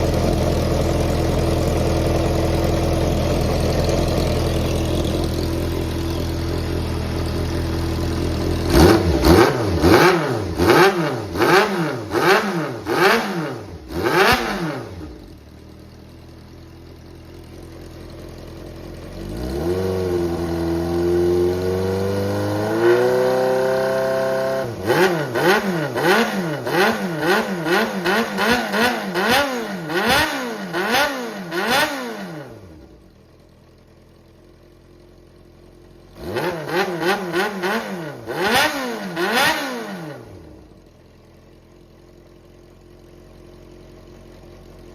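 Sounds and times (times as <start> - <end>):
motorcycle engine idling and revving: 0.0 - 44.9.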